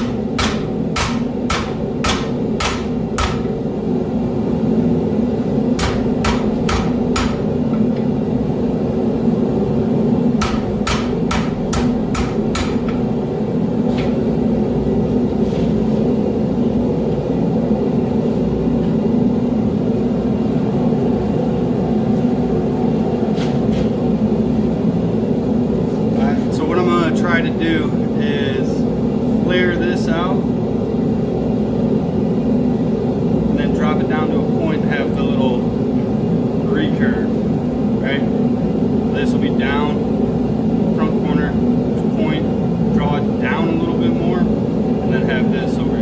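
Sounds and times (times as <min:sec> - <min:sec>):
hammer striking steel on anvil: 0:00.0 - 0:03.6, 0:05.8 - 0:07.9, 0:10.4 - 0:13.1.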